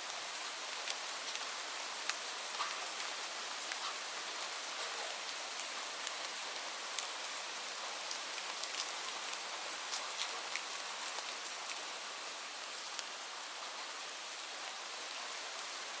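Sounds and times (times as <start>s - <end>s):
rain falling on leaves: 0.0s - 16.0s.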